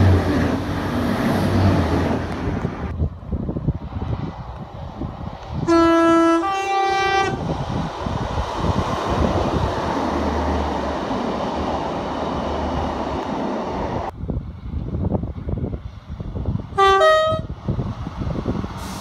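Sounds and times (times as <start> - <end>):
train engine and wheels rumbling: 0.0 - 19.0
train two-note horn: 5.7 - 7.4, 16.8 - 17.5.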